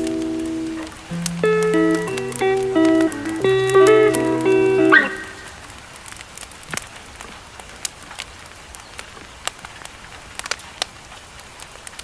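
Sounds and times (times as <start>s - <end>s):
rain hissing: 0.0s - 8.8s
campfire crackling and popping: 0.0s - 12.0s.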